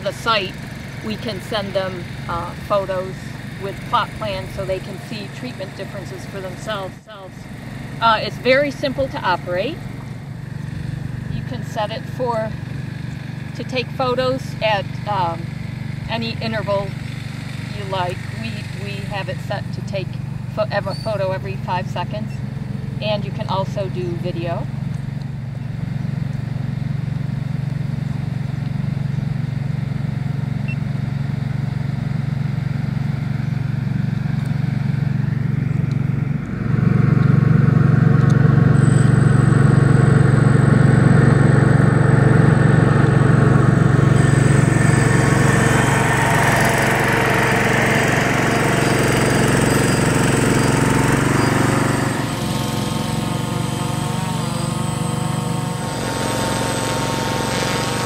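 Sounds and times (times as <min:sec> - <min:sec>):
drone rotors humming: 0:00.0 - 0:58.0.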